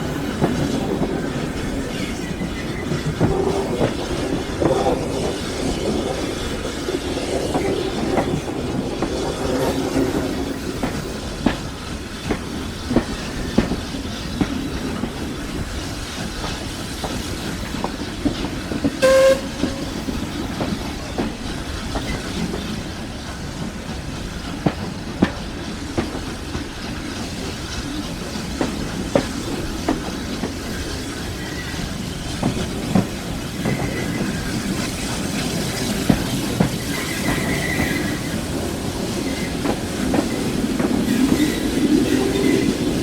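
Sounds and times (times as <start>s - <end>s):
steam train rolling: 0.0s - 43.0s
wheels clicking over rail joints: 0.0s - 43.0s
locomotive whistle toot: 19.0s - 20.2s.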